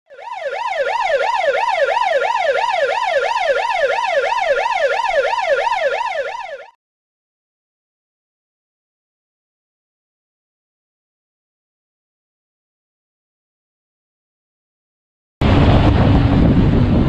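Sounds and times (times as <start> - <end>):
electronic siren yelping: 0.1 - 6.8.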